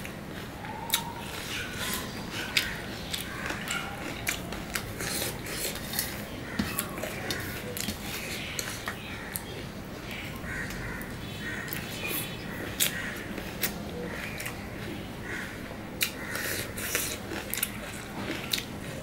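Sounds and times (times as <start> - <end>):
wet chewing and lip-smacking: 0.8 - 9.5, 16.0 - 19.0.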